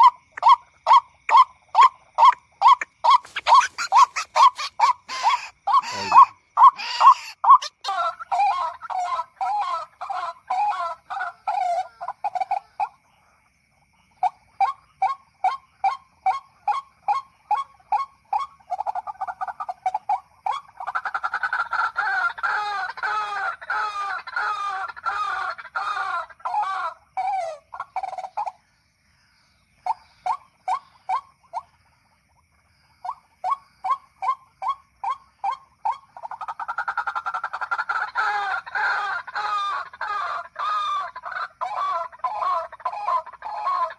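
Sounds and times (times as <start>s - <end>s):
waterhen croaking calls: 0.0s - 13.0s, 14.2s - 28.6s, 33.0s - 43.9s.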